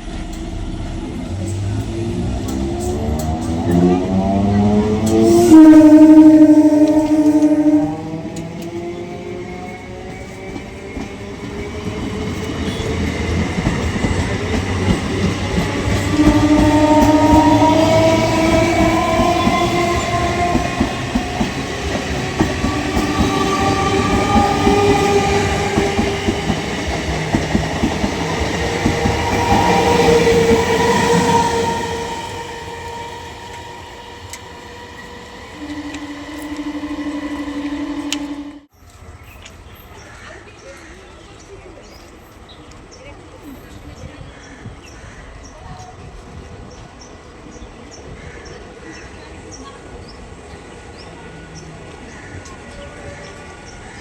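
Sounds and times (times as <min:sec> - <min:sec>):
train wheels clattering on rails: 0:00.0 - 0:05.6, 0:06.2 - 0:38.6
electric train whine: 0:00.0 - 0:38.7
train horn: 0:02.1 - 0:09.3, 0:15.5 - 0:38.7.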